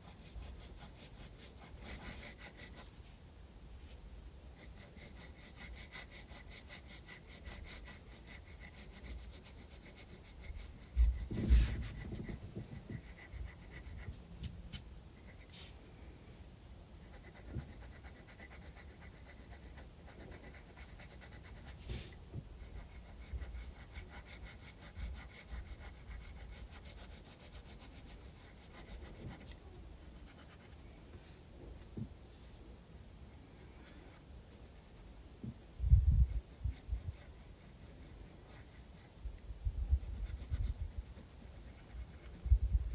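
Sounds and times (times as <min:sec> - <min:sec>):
pencil shading on paper: 0:00.0 - 0:03.1, 0:04.6 - 0:14.2, 0:17.0 - 0:32.7, 0:33.3 - 0:35.2, 0:36.2 - 0:42.9
soft low thumps: 0:10.9 - 0:13.2.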